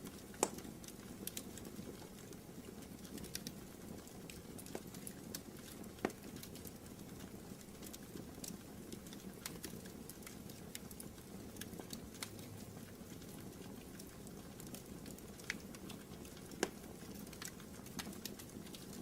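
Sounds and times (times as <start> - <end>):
fireplace fire crackling: 0.0 - 19.0.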